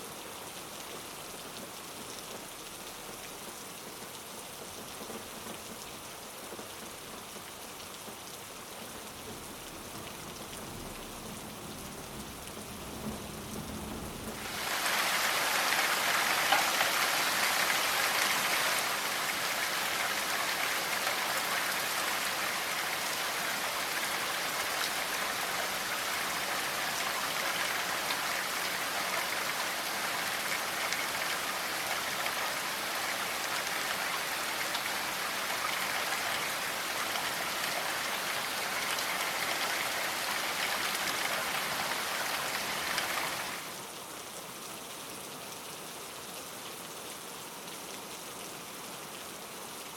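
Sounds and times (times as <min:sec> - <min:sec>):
steady rainfall: 0:00.0 - 0:49.9.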